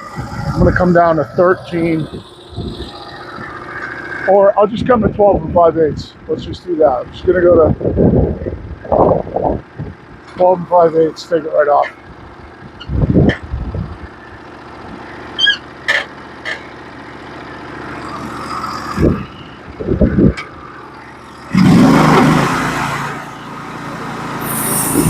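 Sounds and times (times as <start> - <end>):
bandsaw mill running: 15.6 - 25.0.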